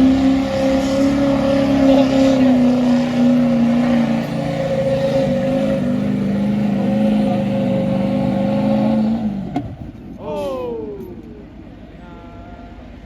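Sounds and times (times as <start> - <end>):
truck engine at high revs: 0.0 - 10.2.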